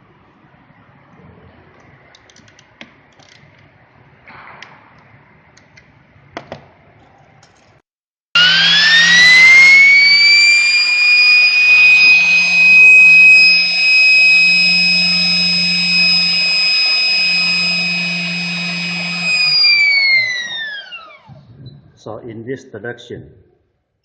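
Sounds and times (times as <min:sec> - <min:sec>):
turbine rotor high whine: 0:08.4 - 0:21.5.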